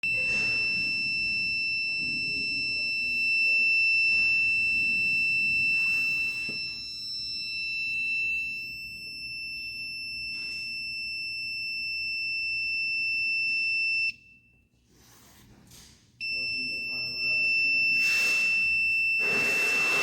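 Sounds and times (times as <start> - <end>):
high-pitched alarm buzzer: 0.0 - 14.2, 16.2 - 20.0.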